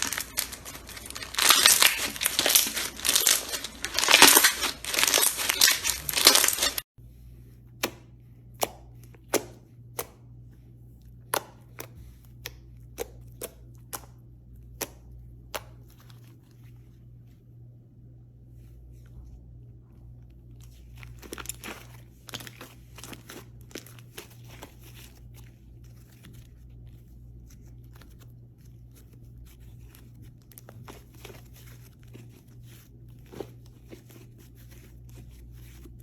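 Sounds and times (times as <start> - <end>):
slime crackling and crinkling: 0.0 - 6.9, 20.2 - 36.0
low steady hum: 0.0 - 36.0.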